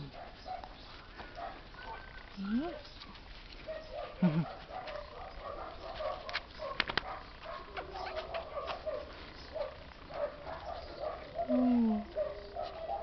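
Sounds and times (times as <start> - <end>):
dogs whining and yelping: 3.6 - 13.0
sharp clicks: 6.2 - 7.1.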